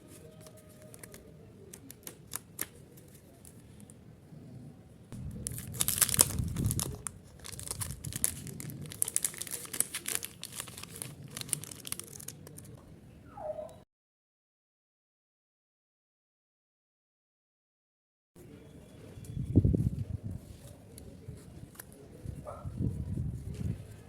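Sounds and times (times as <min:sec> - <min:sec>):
packaging crinkling: 0:00.2 - 0:03.6, 0:05.2 - 0:12.8.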